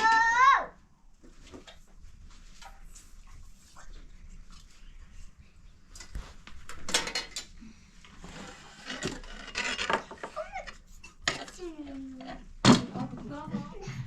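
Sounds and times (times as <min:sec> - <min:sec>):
hard objects clattering and rubbing: 0:06.1 - 0:14.0.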